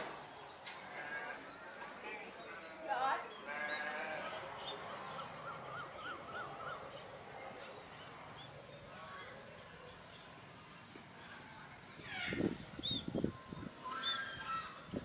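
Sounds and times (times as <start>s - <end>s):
bird calling: 3.3s - 8.8s, 12.0s - 15.0s.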